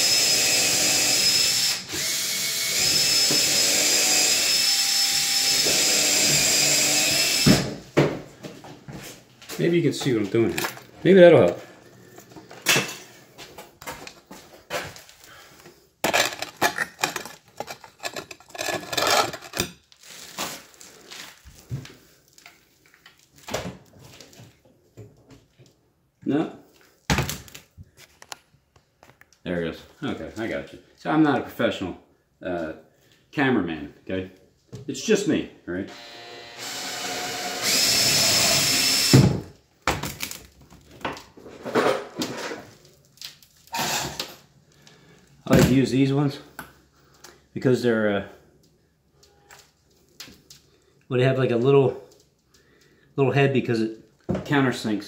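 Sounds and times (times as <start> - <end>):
power drill driving screw: 0.0 - 7.8, 16.1 - 19.7, 35.9 - 39.5, 43.7 - 44.3
handling sounds: 8.4 - 24.6.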